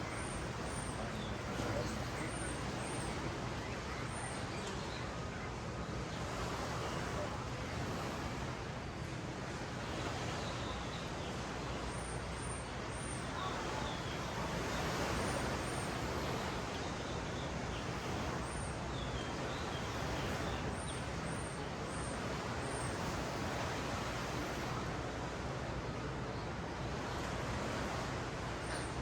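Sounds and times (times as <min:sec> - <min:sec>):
ocean surf washing: 0:00.0 - 0:29.0.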